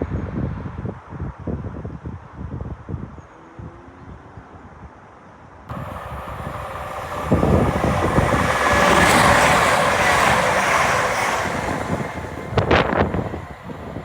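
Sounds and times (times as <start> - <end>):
train rushing past: 5.7 - 14.0.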